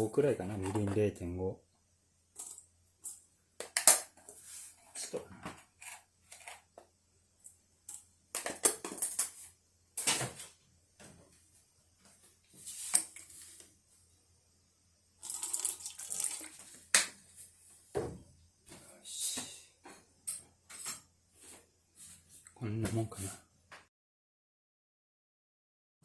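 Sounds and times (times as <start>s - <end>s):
small containers clinking: 0.5s - 1.1s, 15.2s - 16.8s
liquid pouring and stirring: 15.2s - 16.9s.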